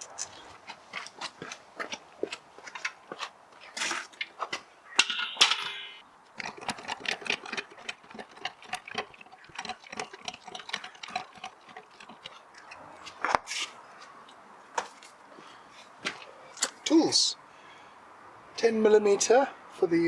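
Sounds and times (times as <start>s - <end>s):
metal tools clicking and tapping: 5.0s - 6.0s
metal tools jangling: 5.0s - 6.0s.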